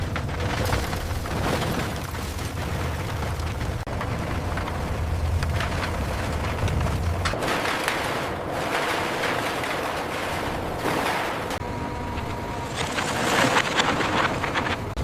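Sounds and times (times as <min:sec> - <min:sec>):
heavy machinery rumble: 0:00.0 - 0:15.0
metal crashes and clanks: 0:06.4 - 0:11.6.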